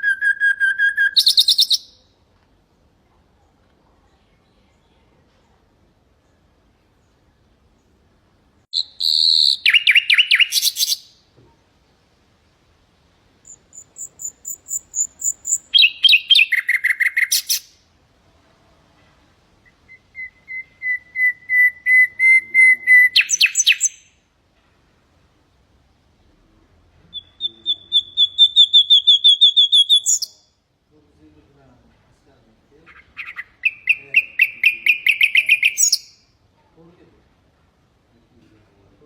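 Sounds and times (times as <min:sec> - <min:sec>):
nightingale singing: 0:00.0 - 0:02.2, 0:08.7 - 0:11.3, 0:13.4 - 0:17.8, 0:19.6 - 0:24.2, 0:27.0 - 0:30.6, 0:32.8 - 0:36.4.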